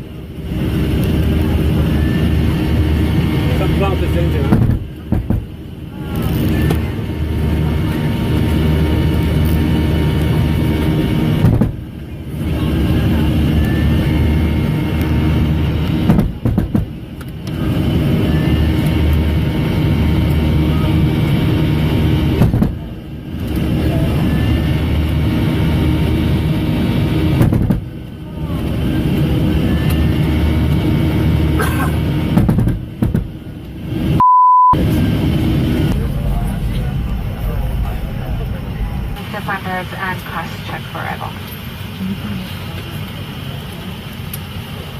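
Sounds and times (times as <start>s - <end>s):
airliner engines droning: 0.0s - 44.9s
short steady beep: 34.2s - 34.8s.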